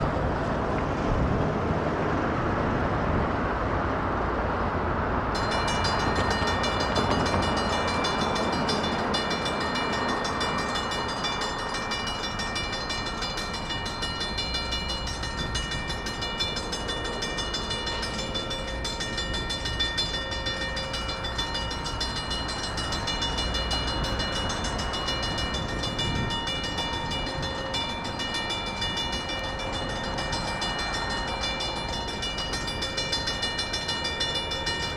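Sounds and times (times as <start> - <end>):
railroad crossing bells ringing: 5.2 - 34.9.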